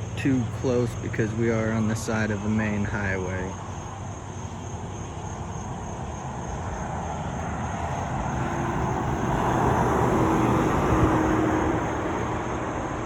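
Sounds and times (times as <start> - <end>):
vehicle passing close by: 5.0 - 13.0.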